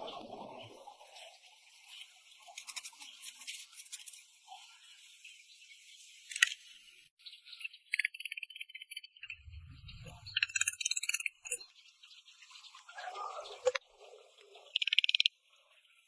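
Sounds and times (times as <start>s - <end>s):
scraping and brushing on hard object: 2.5s - 4.3s
ticks: 14.8s - 15.3s.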